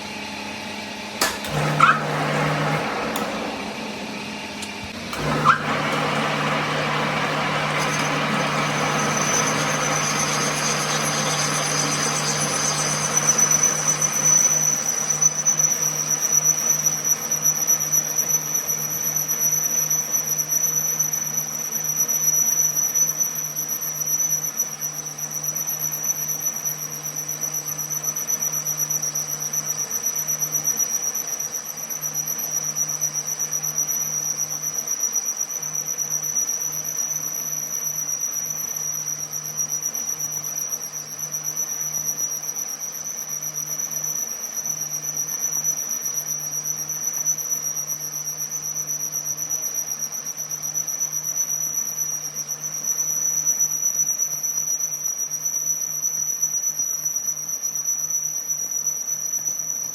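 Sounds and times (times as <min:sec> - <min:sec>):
workshop machine whining: 0:00.0 - 0:20.5.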